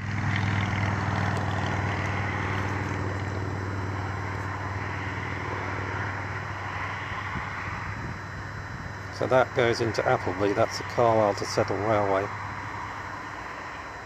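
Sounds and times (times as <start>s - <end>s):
road traffic noise: 0.0s - 14.0s
vehicle engine humming: 0.0s - 14.0s.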